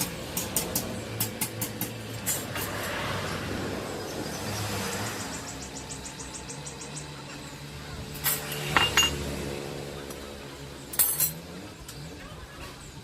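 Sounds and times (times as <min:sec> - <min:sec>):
sharp metallic clinks: 0:08.1 - 0:09.3, 0:10.9 - 0:11.5.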